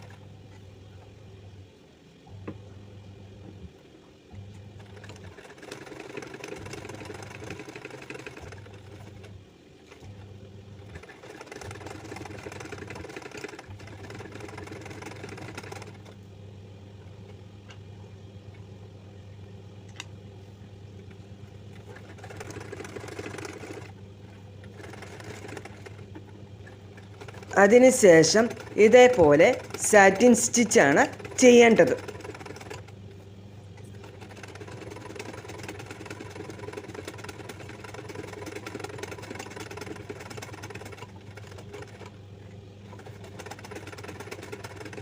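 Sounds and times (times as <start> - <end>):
electric sewing machine stitching: 4.8 - 9.3, 10.8 - 16.2, 21.8 - 24.0, 24.6 - 33.0, 33.9 - 42.2, 42.9 - 45.0.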